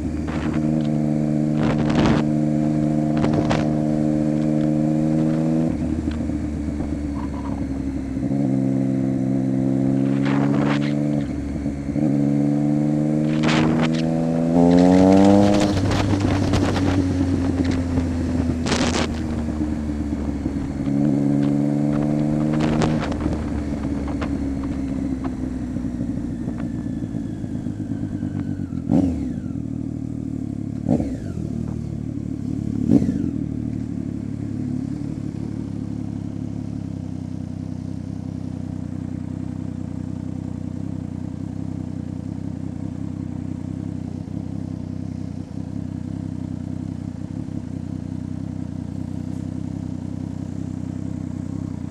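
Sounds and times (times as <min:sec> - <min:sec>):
motorcycle engine revving: 0:00.0 - 0:51.9
exhaust cracks: 0:00.1 - 0:02.3, 0:03.1 - 0:07.7, 0:09.9 - 0:11.4, 0:13.2 - 0:26.8.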